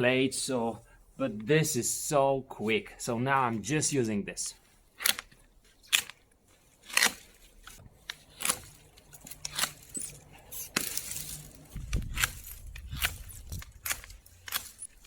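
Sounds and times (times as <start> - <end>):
twigs rustling: 4.5 - 15.0
pruning shears snapping branches: 5.0 - 6.2, 6.8 - 15.0.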